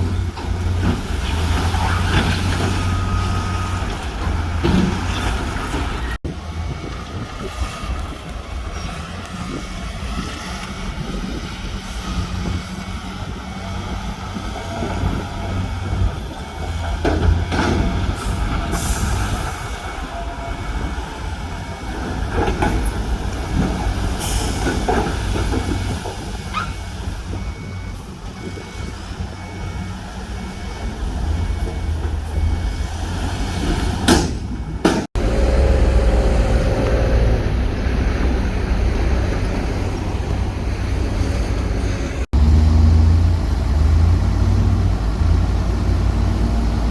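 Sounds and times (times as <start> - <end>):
diesel earthmoving machinery running: 0.0 - 46.9
knocks and clanks: 3.9 - 6.1, 33.6 - 35.7.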